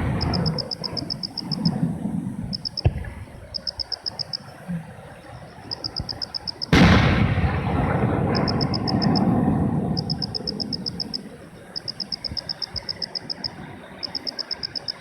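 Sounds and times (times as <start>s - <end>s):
sharp crack: 6.7s - 9.4s
loud boom with rumbling echo: 6.7s - 10.0s
fireworks bursting: 6.7s - 10.7s.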